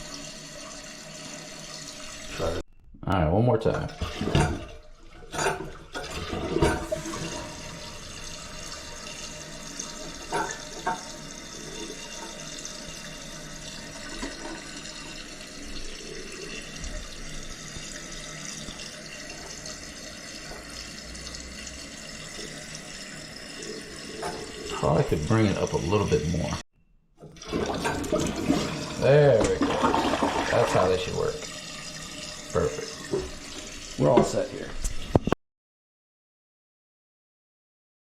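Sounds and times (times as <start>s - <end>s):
toilet flushing: 0.0s - 2.6s, 3.7s - 26.6s, 27.2s - 35.4s
toilet tank refilling hiss: 5.8s - 26.6s, 27.3s - 35.3s.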